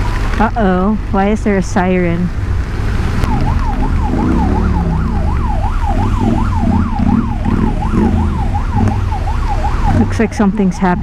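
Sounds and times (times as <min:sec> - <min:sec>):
low rumble: 0:00.0 - 0:11.0
siren yelping: 0:03.1 - 0:11.0.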